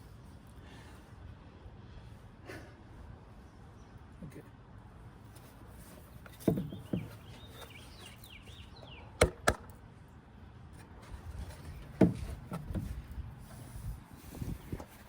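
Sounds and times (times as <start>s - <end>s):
knocks and clunks of parts: 6.2s - 7.8s, 10.8s - 13.1s.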